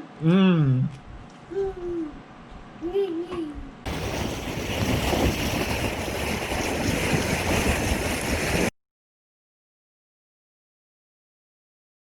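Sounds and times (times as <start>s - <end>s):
rushing water: 3.9s - 8.7s
wind buffeting microphone: 3.9s - 8.7s.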